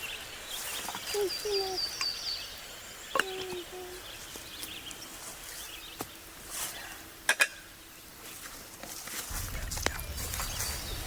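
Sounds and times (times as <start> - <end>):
faint high bird chirps: 0.0 - 6.0.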